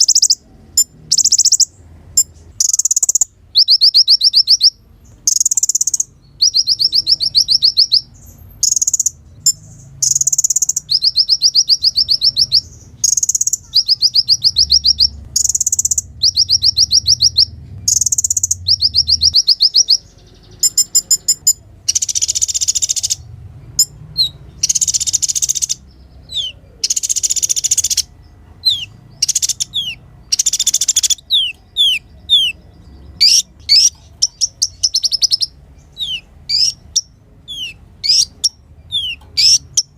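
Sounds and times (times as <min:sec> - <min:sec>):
sunbird singing trilled phrases: 0:00.0 - 0:39.9.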